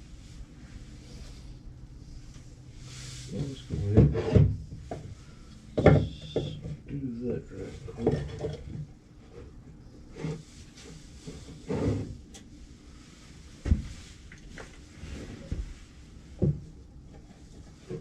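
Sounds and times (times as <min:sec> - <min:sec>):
objects knocking on workbench: 0:05.8 - 0:06.6.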